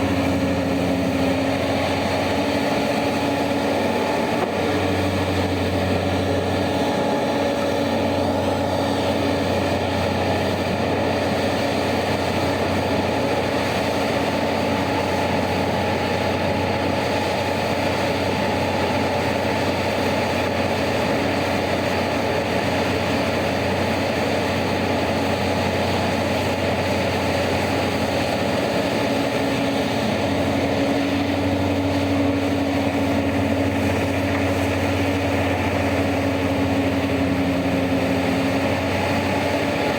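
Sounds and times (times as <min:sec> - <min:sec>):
heavy machinery diesel engines droning: 0:00.0 - 0:39.9.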